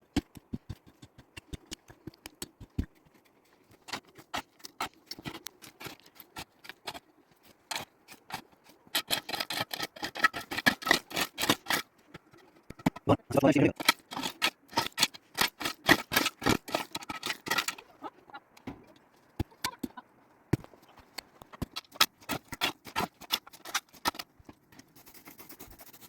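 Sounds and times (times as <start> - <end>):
sharp clicks and knocks: 0.0 - 7.0, 7.6 - 17.9.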